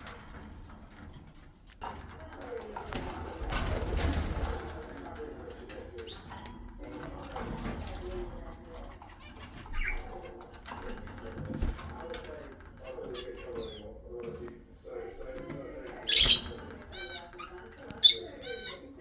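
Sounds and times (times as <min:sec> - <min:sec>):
parrots calling: 0:13.1 - 0:13.8, 0:16.0 - 0:18.9.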